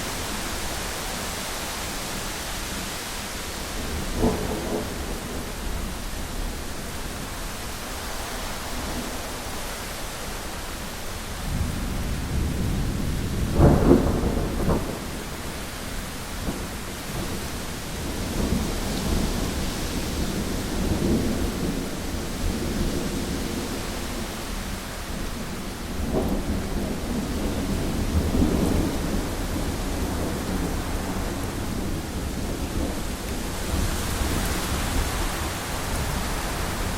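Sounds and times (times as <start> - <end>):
heavy rain on a window: 0.0 - 36.9
thunder rumbling: 3.8 - 7.3, 11.4 - 36.9.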